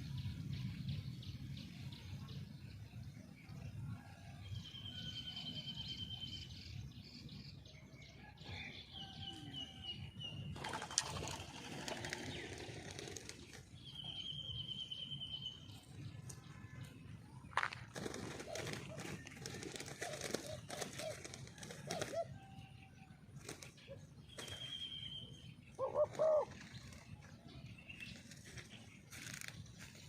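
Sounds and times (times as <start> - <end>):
rustling noise: 28.1 - 30.0.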